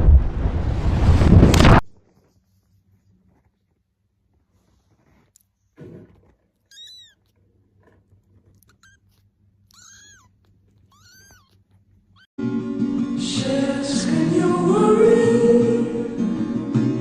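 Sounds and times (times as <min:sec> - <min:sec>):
rustling thump: 0:05.0 - 0:06.5
cat mewing: 0:06.6 - 0:07.4, 0:08.4 - 0:12.3.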